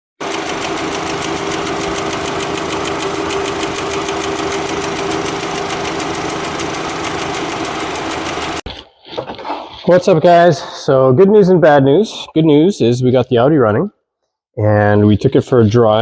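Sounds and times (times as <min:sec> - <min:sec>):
car engine idling: 0:00.2 - 0:08.6
rapid ticking from valve cover: 0:00.2 - 0:08.6.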